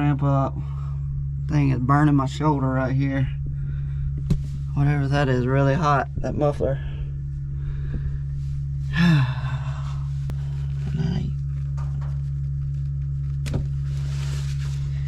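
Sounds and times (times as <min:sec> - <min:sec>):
low engine hum: 0:00.0 - 0:15.0
man grunting with effort: 0:08.9 - 0:10.1.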